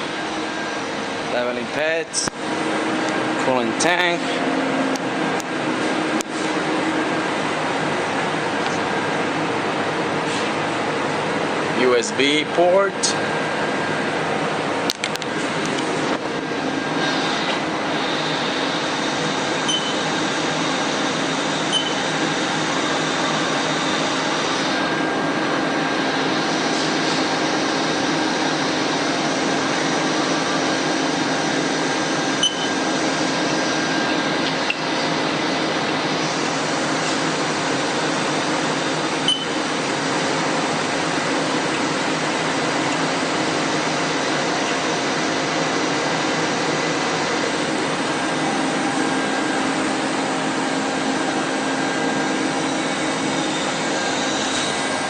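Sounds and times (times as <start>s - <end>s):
machinery whirring hum: 0.0s - 55.0s.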